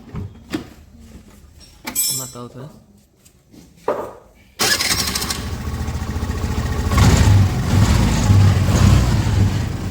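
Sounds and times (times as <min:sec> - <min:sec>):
scooter engine starting and running: 0:04.6 - 0:09.9.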